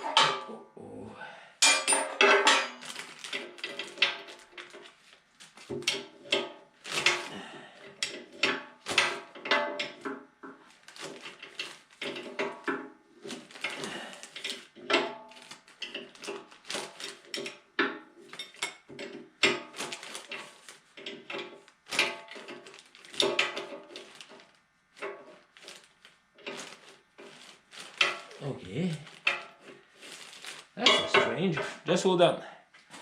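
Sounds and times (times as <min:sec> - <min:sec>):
metal tools clinking: 0:01.6 - 0:04.8, 0:30.8 - 0:31.7.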